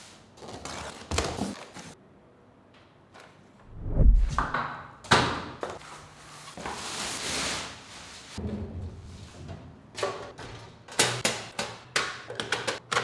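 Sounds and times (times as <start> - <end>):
heavy low thud: 3.7 - 4.6.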